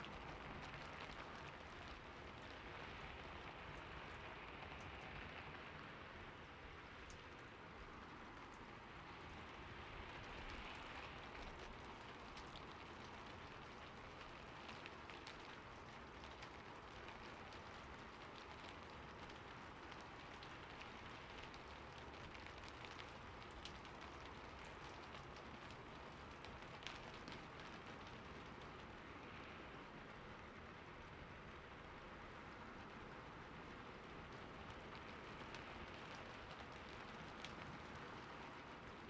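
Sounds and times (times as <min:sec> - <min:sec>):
rain falling on a roof: 0:00.0 - 0:39.0.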